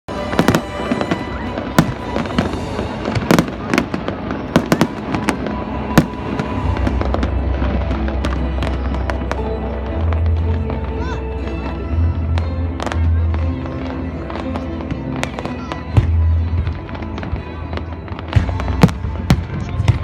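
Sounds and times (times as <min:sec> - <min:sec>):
fireworks bangs: 0:00.1 - 0:10.8
fireworks crackling: 0:00.1 - 0:20.0.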